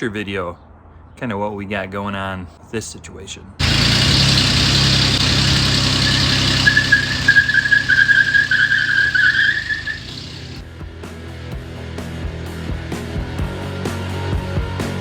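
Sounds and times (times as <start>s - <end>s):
vehicle engine running: 3.6s - 10.6s
wavering high squeal: 3.6s - 10.6s.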